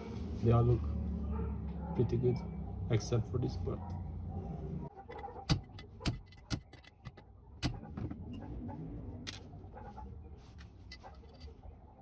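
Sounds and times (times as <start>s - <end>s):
sharp metal clicks and taps: 5.2s - 7.8s.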